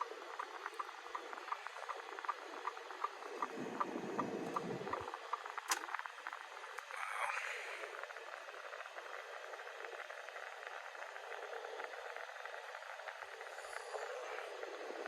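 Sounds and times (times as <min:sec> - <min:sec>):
low cabin hum: 0:00.0 - 0:08.5.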